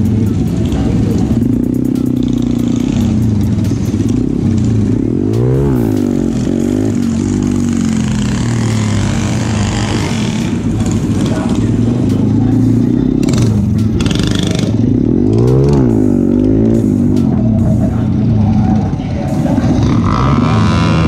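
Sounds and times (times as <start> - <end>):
small motorcycle engines humming: 0.0 - 21.0.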